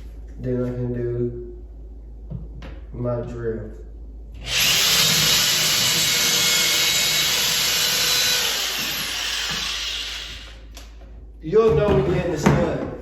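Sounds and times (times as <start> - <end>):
power drill boring into wood: 4.4 - 10.7.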